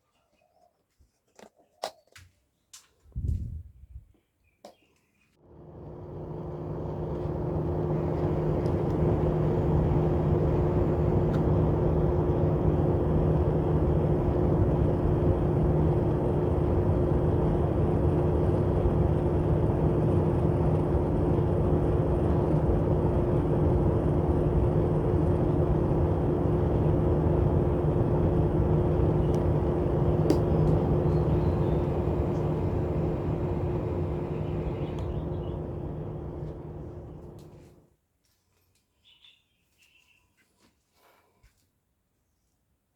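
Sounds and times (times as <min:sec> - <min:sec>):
small fans motor hum: 0:05.4 - 0:37.8.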